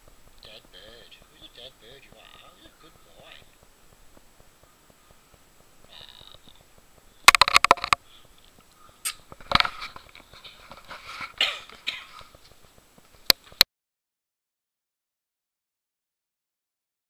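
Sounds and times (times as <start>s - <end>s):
sharp clicks: 0.3s - 10.4s.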